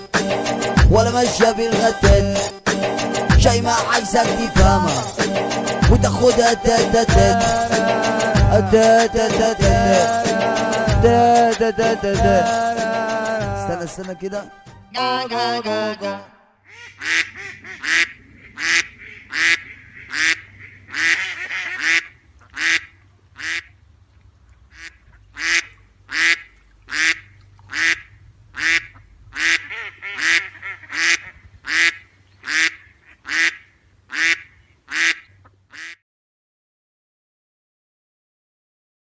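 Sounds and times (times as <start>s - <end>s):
quack-like calls: 16.6s - 23.8s, 24.7s - 36.0s.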